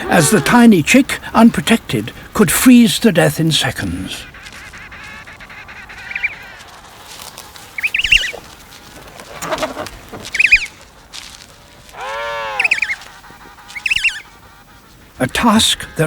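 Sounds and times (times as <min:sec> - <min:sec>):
penguins trumpet calling: 0:00.0 - 0:00.8, 0:04.1 - 0:08.4, 0:11.9 - 0:14.4.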